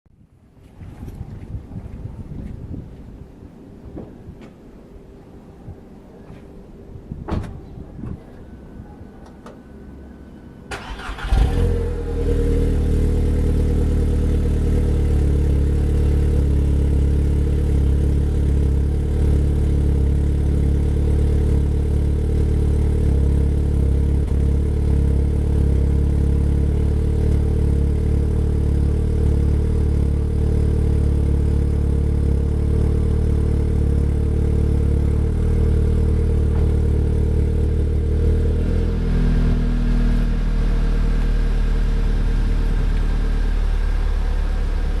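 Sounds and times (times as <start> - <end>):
car engine idling: 10.7 - 45.0.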